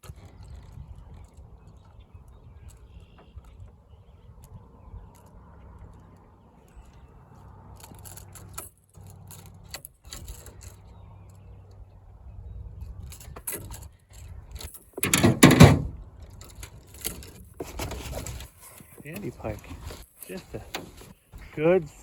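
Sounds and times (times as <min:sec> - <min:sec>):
fish thrashing and clattering: 0:17.0 - 0:21.1.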